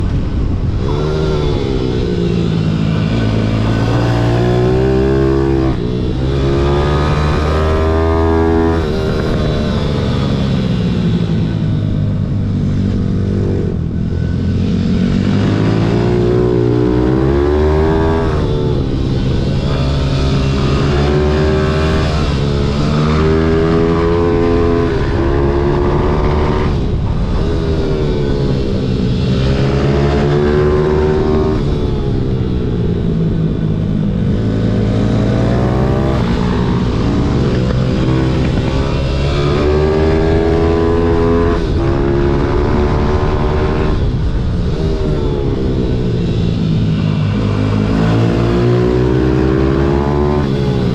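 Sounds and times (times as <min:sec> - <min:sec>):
pit bike engine revving: 0:00.0 - 0:50.9.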